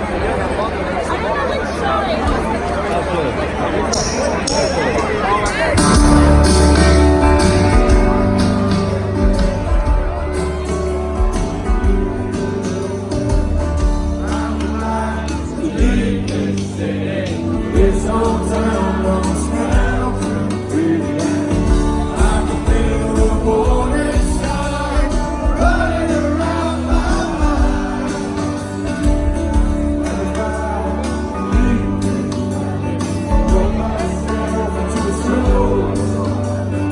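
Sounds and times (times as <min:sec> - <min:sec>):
live band playing: 0:02.0 - 0:36.9
man singing: 0:14.2 - 0:36.9.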